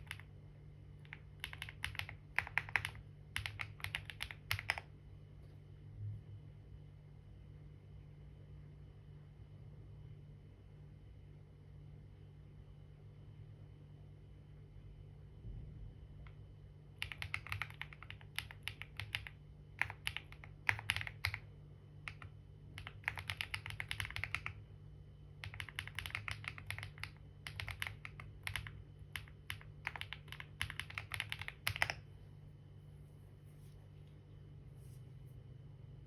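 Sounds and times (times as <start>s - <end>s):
typing on computer keyboard: 0.0s - 0.3s, 1.0s - 4.9s, 17.0s - 24.6s, 25.4s - 32.1s.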